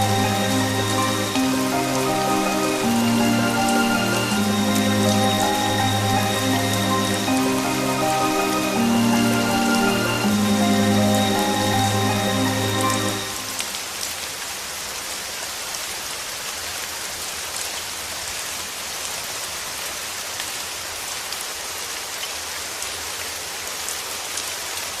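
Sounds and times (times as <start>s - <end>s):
background music: 0.0s - 14.0s
steady rain hiss: 0.0s - 25.0s.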